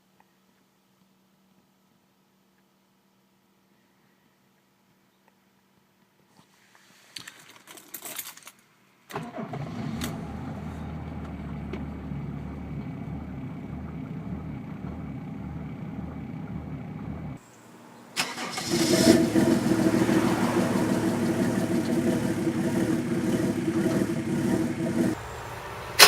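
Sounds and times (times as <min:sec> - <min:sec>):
diesel engine idling with pulsing: 0:10.2 - 0:17.4, 0:18.2 - 0:26.0
starter motor cranking: 0:18.2 - 0:20.1.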